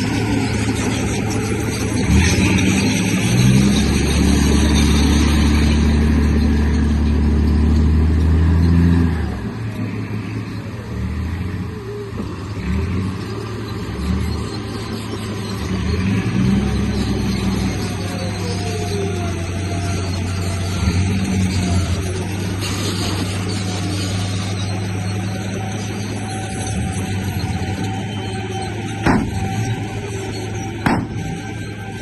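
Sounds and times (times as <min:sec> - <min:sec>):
toy bulldozer motor drone: 0:10.2 - 0:32.0.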